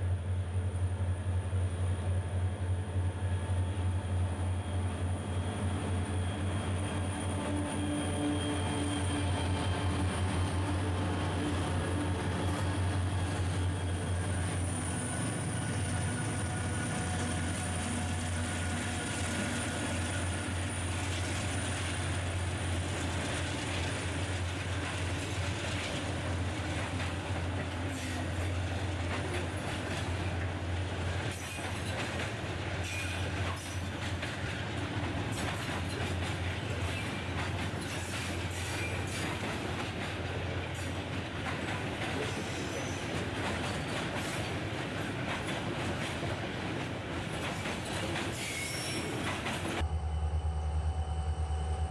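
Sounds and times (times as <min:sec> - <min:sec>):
wheel squeal: 0:48.1 - 0:49.8
diesel locomotive rumble: 0:49.2 - 0:51.9.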